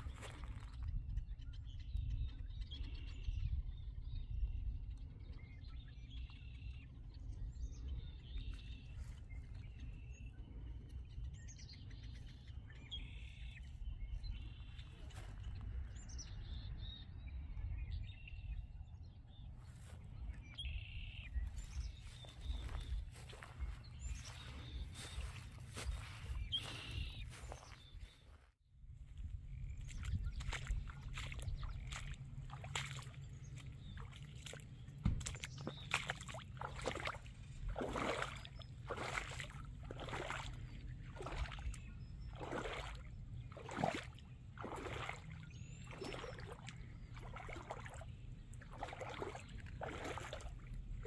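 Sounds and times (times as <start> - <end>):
small birds chirping: 0.0 - 28.5, 29.1 - 51.0
steady low rumble: 28.8 - 51.0.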